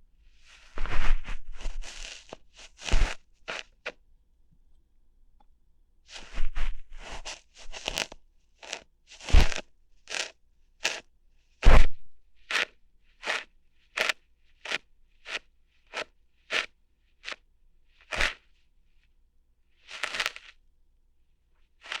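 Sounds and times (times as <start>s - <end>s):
ear hair plucking crackles: 1.6s - 3.9s, 7.2s - 11.0s, 12.5s - 13.4s, 14.0s - 17.4s, 18.1s - 18.4s, 19.9s - 20.5s.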